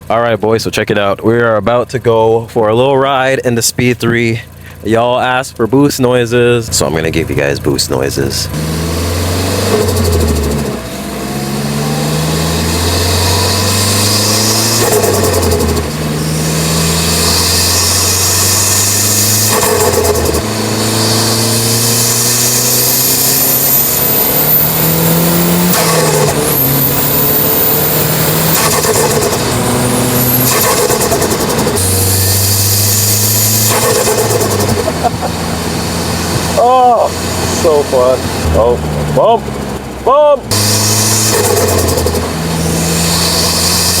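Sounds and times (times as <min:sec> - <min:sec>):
car engine accelerating: 0:02.8 - 0:44.0
turbo blow-off air rush: 0:08.6 - 0:39.0, 0:40.5 - 0:44.0
turbo whistle: 0:31.8 - 0:34.5.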